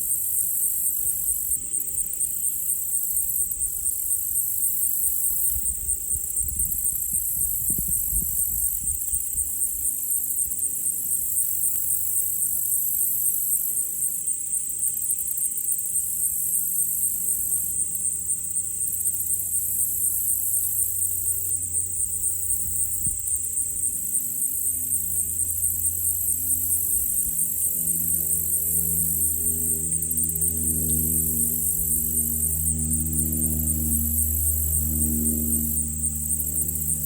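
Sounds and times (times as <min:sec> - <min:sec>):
high-pitched insect chorus: 0:00.0 - 0:37.0
faint low rumble: 0:17.2 - 0:37.0.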